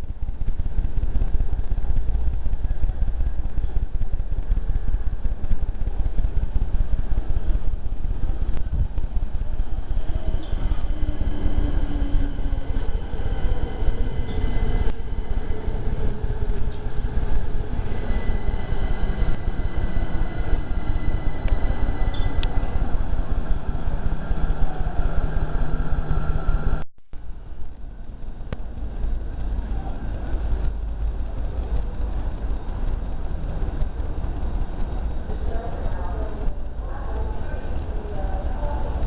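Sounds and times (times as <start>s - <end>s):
train wheels rumbling on rail: 0.0s - 26.8s
faint high whine: 0.0s - 39.0s.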